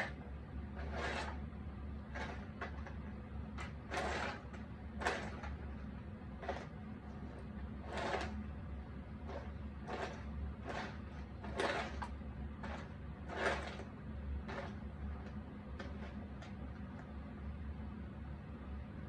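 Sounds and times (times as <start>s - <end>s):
low steady hum: 0.0s - 19.0s
puzzle pieces scraping and tapping: 2.1s - 3.0s, 3.6s - 5.6s, 9.3s - 13.8s.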